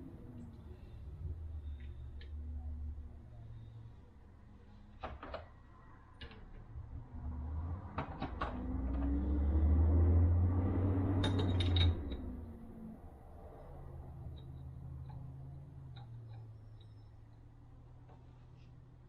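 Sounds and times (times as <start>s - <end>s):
light metal clicks and knocks: 11.2s - 12.4s, 14.2s - 17.4s.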